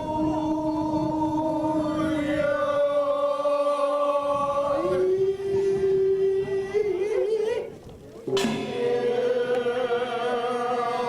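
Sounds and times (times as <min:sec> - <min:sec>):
person singing a long held note: 0:00.0 - 0:07.2, 0:08.4 - 0:11.0.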